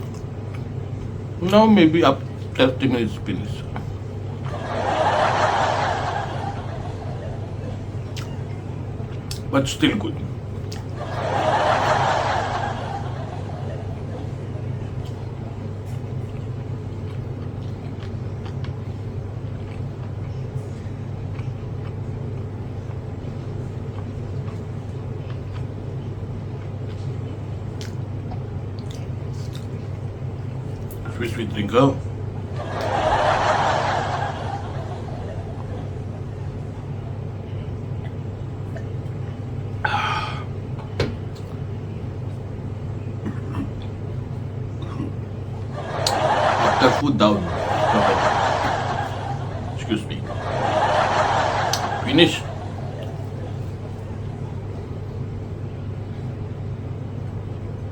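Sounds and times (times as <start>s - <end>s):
person eating: 0.0s - 1.3s, 6.7s - 9.5s, 10.3s - 31.0s
steady low hum: 0.0s - 57.9s.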